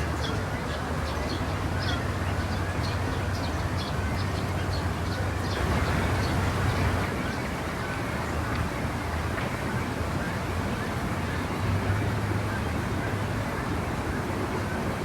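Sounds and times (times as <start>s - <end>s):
distant traffic rumble: 5.5s - 7.4s.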